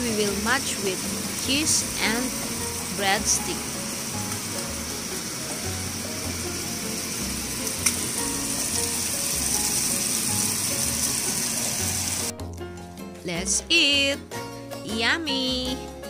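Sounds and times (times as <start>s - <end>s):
ham sizzling in a pan: 0.0s - 12.4s
background music: 0.0s - 16.0s.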